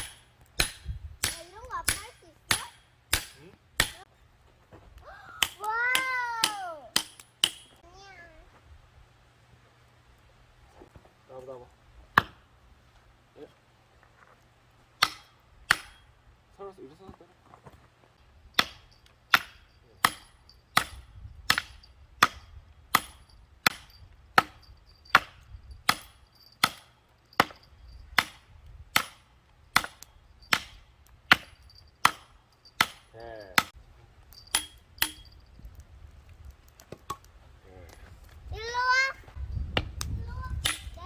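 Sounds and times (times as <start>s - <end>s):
hatchet chopping firewood: 0.0s - 4.1s, 5.0s - 7.8s, 12.1s - 12.5s, 15.0s - 16.2s, 18.2s - 35.8s, 36.4s - 38.0s, 39.7s - 41.0s.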